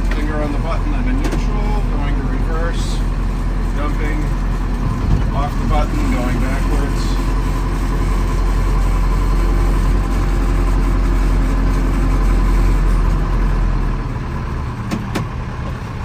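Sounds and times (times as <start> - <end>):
backhoe diesel engine running: 0.0 - 16.0.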